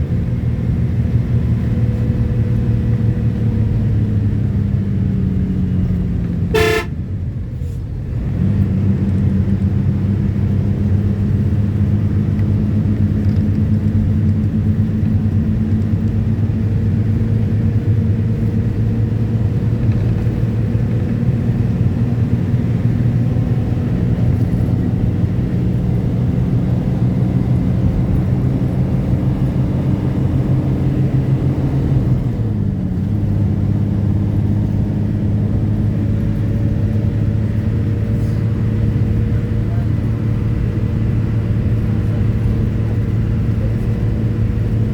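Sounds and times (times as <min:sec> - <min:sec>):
vehicle engine humming: 0:00.0 - 0:44.9
short horn toot: 0:06.5 - 0:07.0.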